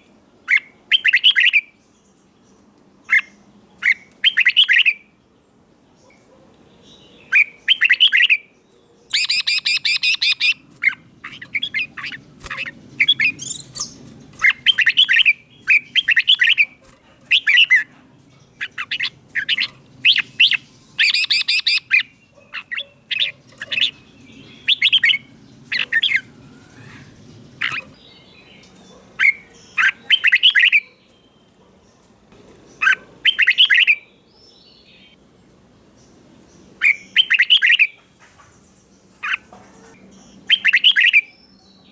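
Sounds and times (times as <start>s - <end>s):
bird singing whistled phrases: 7.3s - 8.4s, 9.1s - 10.6s, 18.6s - 22.1s, 24.5s - 25.2s, 29.2s - 31.4s, 32.8s - 34.1s, 36.9s - 38.0s.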